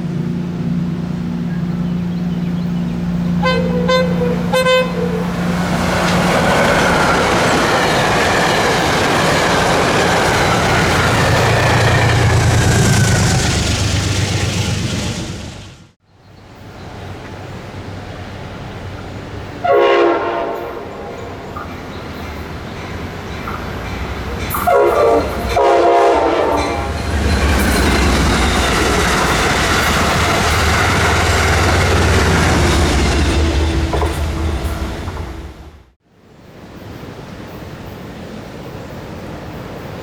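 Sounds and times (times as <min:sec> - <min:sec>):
train horn blasts: 0:02.9 - 0:06.2, 0:19.6 - 0:21.5, 0:24.5 - 0:27.0
train wheels clattering on rails: 0:05.3 - 0:15.8, 0:21.6 - 0:35.8.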